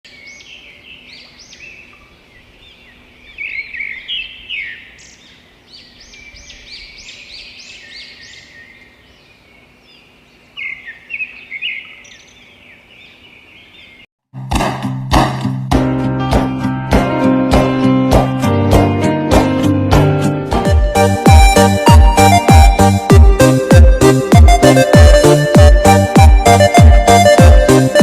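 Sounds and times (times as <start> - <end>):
small birds chirping: 0.1 - 14.1.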